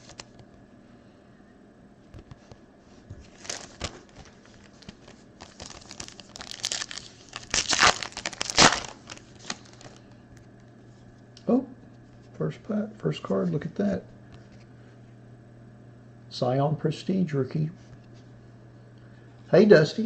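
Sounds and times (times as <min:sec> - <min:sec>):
foil wrapper crinkling and tearing: 0:03.2 - 0:10.0.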